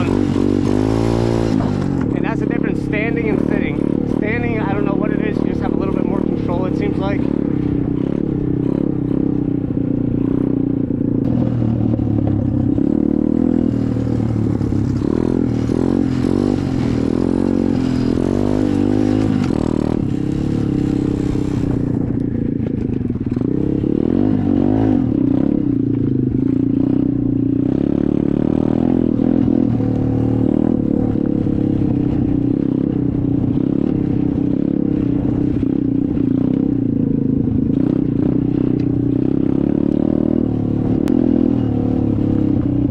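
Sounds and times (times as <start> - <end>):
dirt bike engine running: 0.0 - 42.9.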